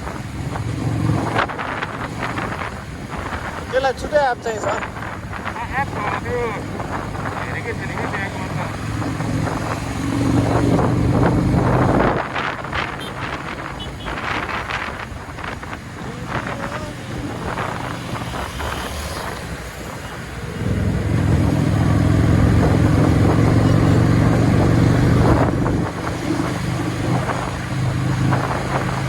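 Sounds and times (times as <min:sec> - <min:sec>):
road and wind noise: 0:00.0 - 0:29.0
engine drone: 0:16.0 - 0:29.0.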